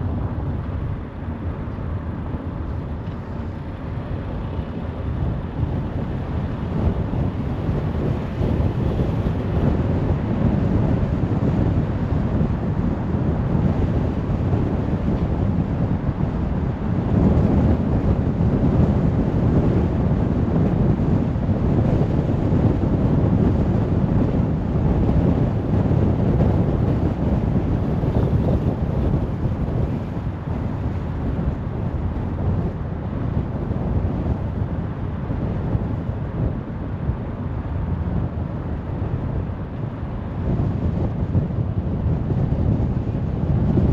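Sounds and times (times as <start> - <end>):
rushing air: 0.0 - 19.6.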